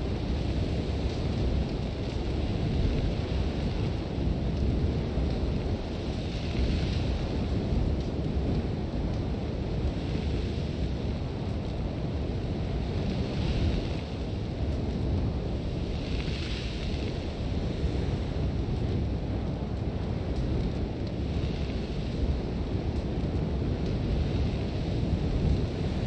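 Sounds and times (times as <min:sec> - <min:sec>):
sandstorm wind buffeting: 0:00.0 - 0:26.0
hiss of blown sand: 0:15.8 - 0:18.2.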